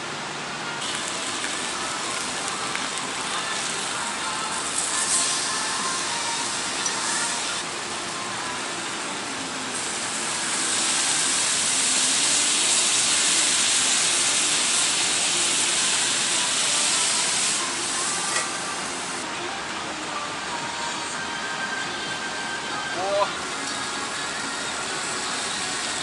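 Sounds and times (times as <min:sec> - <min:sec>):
meat sizzling: 0:00.8 - 0:09.0, 0:09.6 - 0:19.2, 0:23.5 - 0:26.0.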